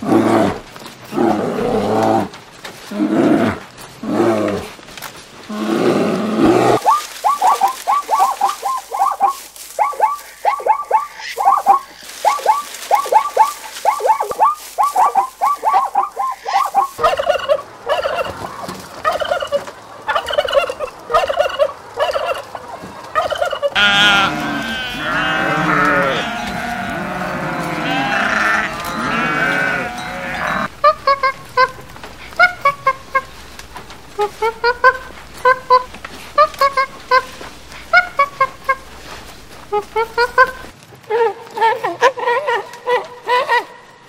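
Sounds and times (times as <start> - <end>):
repeated animal call: 5.5 - 22.5, 23.2 - 33.5
animal call with falling notes: 6.6 - 18.3, 23.2 - 31.8
goats bleating: 23.8 - 33.3.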